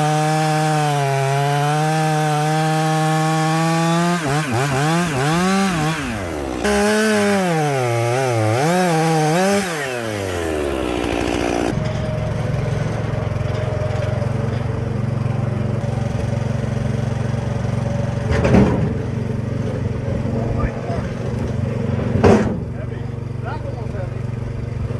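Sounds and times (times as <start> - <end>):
chainsaw cutting: 0.0 - 24.9
low engine drone: 11.7 - 24.9.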